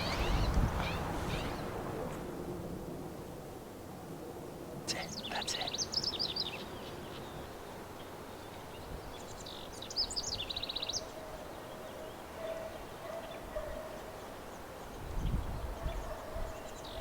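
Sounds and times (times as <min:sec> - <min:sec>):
songbird singing trill: 0:00.0 - 0:01.7, 0:04.9 - 0:11.2.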